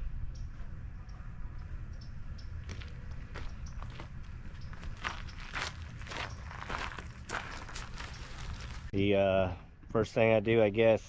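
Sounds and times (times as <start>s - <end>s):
crunching footsteps: 2.5s - 8.9s.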